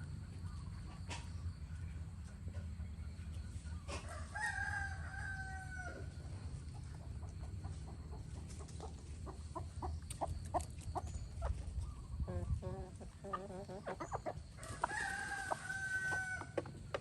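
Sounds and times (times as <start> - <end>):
chickens clucking: 0.0 - 5.2, 5.8 - 17.0
rooster crowing: 4.0 - 6.1, 14.6 - 16.6.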